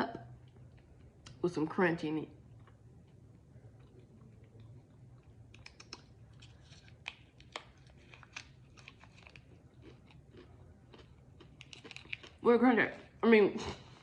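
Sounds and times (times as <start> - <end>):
faint low hum: 0.0 - 14.0
chewing crisp chip: 2.5 - 12.4.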